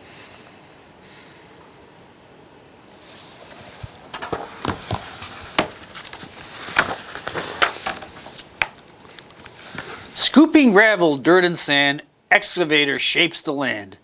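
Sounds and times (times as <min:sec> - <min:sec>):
paper page crinkling: 0:03.0 - 0:10.3.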